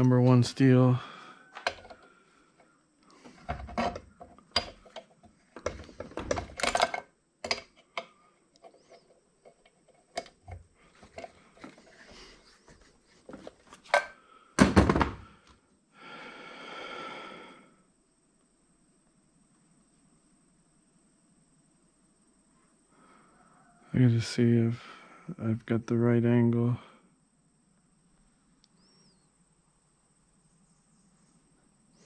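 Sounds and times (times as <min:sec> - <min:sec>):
metal parts clanking: 0:03.4 - 0:10.4.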